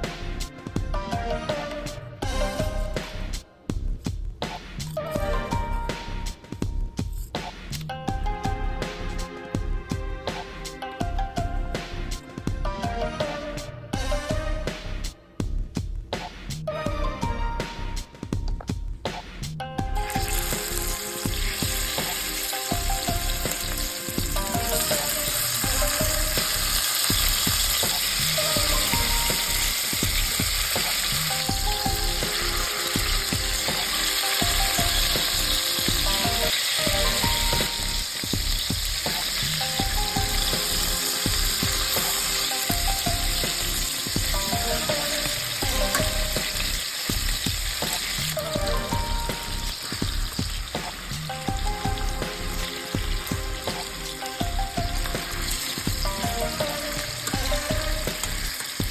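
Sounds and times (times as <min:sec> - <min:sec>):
food sizzling in hot oil: 0:20.0 - 0:58.9.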